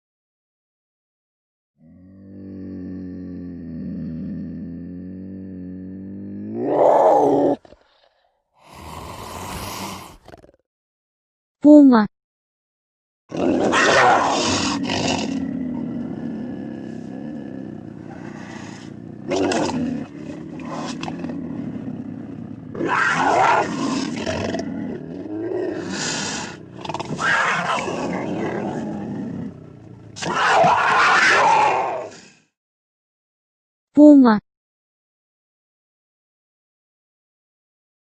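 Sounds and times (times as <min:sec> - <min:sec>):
big cat growling: 0:01.8 - 0:10.6, 0:13.3 - 0:32.5
harsh snarls: 0:01.8 - 0:10.6, 0:13.3 - 0:32.6.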